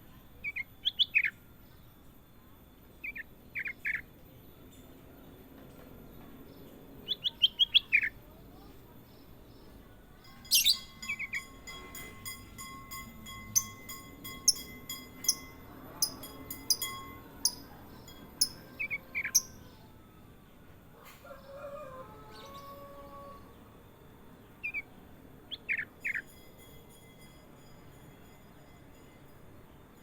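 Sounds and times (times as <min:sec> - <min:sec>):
bulbul chirping: 0:14.5 - 0:17.7, 0:18.4 - 0:19.8.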